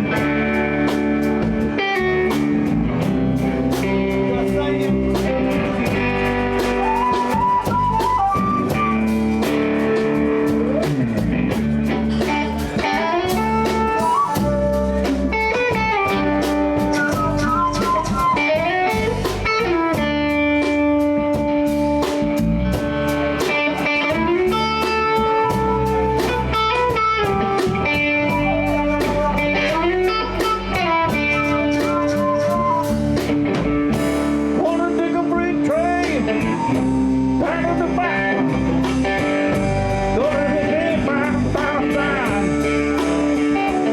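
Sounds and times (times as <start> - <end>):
electric guitar lead notes: 0.0 - 43.9
live blues band playing: 0.0 - 43.9.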